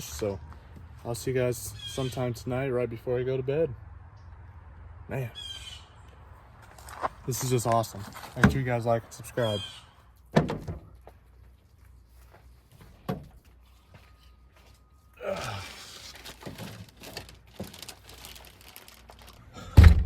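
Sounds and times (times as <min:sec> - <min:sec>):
crinkling rustling handling: 0:11.2 - 0:19.5
heavy thump: 0:19.7 - 0:20.0.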